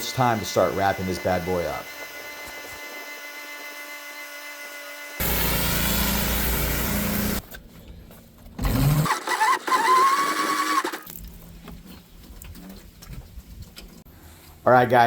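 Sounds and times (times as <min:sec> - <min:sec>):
pressure washer running: 0:00.0 - 0:04.0, 0:05.2 - 0:07.4.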